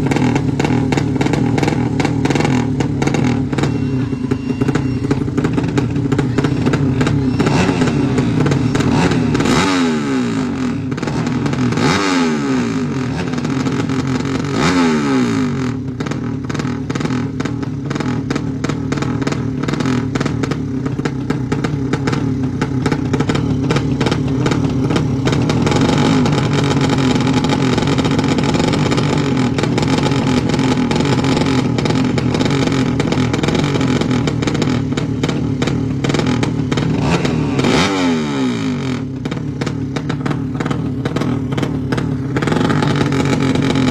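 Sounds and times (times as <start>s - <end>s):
racing motorcycle engines revving: 0.0s - 43.9s.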